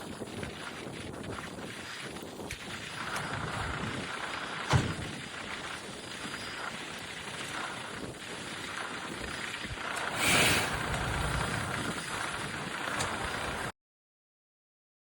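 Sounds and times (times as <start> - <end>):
rush of noise: 2.7 - 13.7
diesel engine running: 9.8 - 13.7.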